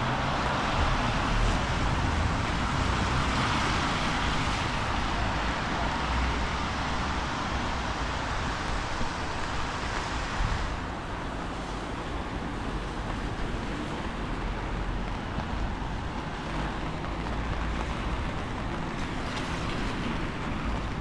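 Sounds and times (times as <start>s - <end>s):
street hiss: 0.1s - 14.1s.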